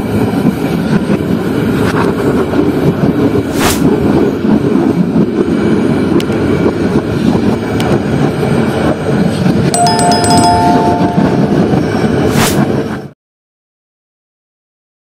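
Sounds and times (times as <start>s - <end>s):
train rumbling along the track: 0.0s - 13.1s
two-tone notification chime: 9.8s - 11.8s.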